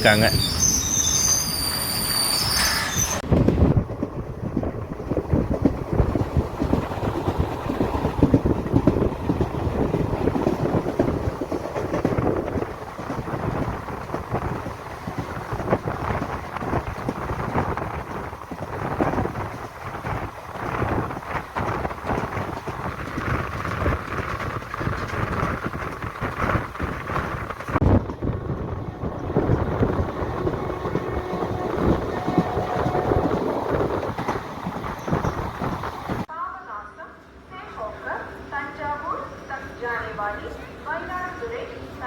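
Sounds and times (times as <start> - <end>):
train wheels rumbling and rattling: 0.0 - 36.3.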